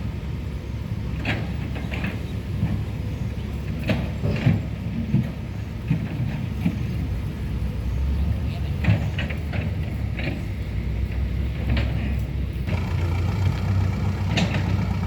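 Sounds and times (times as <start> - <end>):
heavy diesel engine running: 7.5 - 15.0
knocks and clanks: 12.7 - 15.0.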